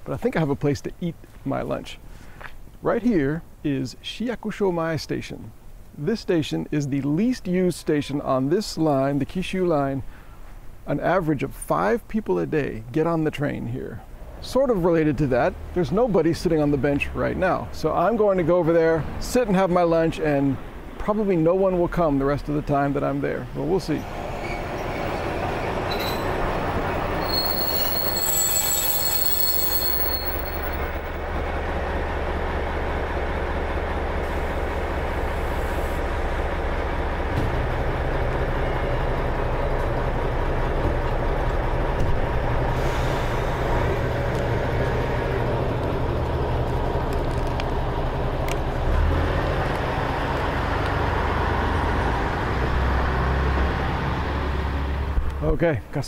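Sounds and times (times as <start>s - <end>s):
diesel railcar engine: 23.5s - 55.4s
high brake squeal: 24.0s - 31.2s, 42.7s - 43.8s.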